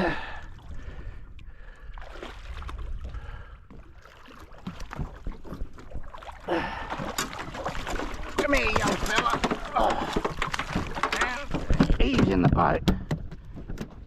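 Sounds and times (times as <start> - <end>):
water sloshing around boat hull: 0.0 - 14.0
fishing gear knocks and clicks: 6.9 - 14.0.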